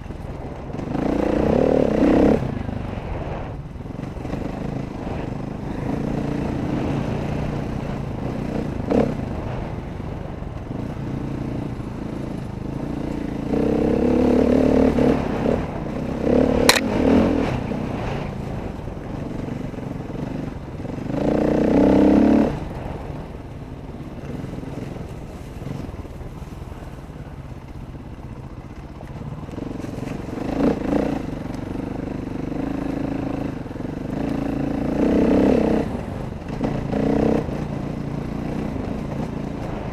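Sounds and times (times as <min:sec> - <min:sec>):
dirt bike engine revving: 0:00.7 - 0:03.4, 0:10.8 - 0:18.3, 0:19.2 - 0:23.0, 0:29.4 - 0:39.9
sharp click: 0:16.6 - 0:17.0.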